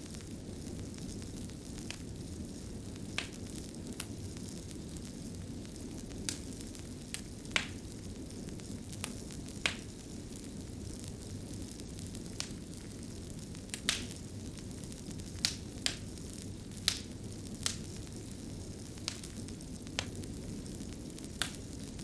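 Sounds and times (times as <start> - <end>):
fire popping and snapping: 0.0 - 22.0
fire rumbling: 0.0 - 22.0.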